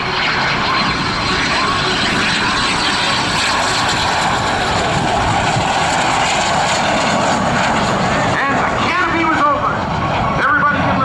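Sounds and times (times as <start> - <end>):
jet engine roaring: 0.0 - 11.0.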